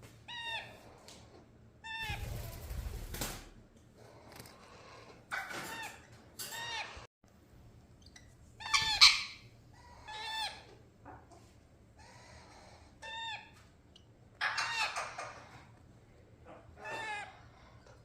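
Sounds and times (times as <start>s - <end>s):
parrots squawking: 0.2s - 2.9s, 4.0s - 7.1s, 8.6s - 11.2s, 12.0s - 13.7s, 14.3s - 15.8s, 16.4s - 18.0s.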